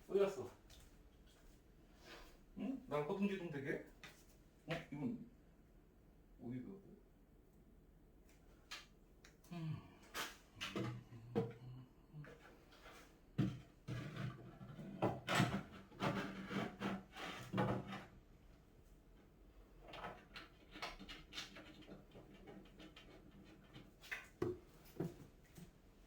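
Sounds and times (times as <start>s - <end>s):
wooden panels knocking and clattering: 19.8s - 25.3s.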